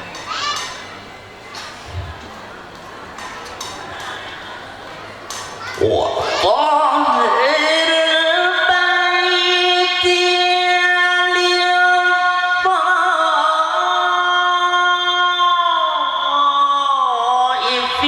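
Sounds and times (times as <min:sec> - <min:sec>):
man reciting melodically: 0:05.8 - 0:18.0.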